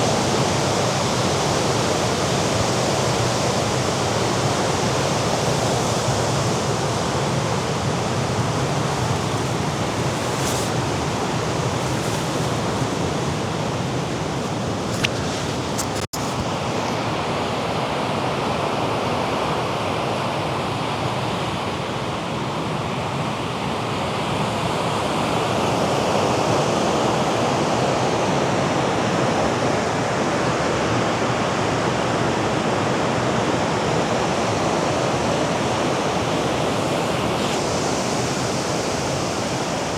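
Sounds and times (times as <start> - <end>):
surf washing against rocks: 7.3 - 17.2.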